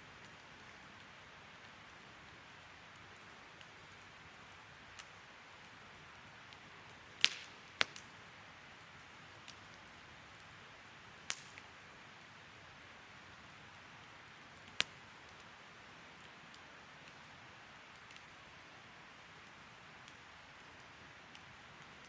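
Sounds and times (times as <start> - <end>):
sharp pops from burning wood: 6.3 - 8.2, 11.2 - 11.8, 14.6 - 15.4
wood fire hissing: 10.5 - 12.0.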